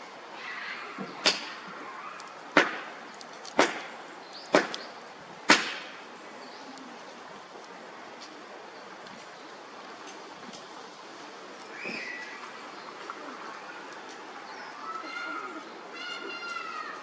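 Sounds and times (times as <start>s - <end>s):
steady low hiss: 0.0s - 17.0s
sharp cracks: 1.1s - 6.2s.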